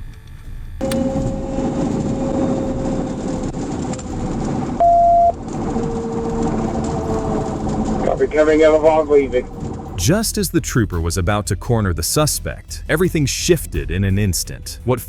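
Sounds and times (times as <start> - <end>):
truck engine and road noise: 0.0 - 13.2
loud electronic beep: 4.8 - 5.4.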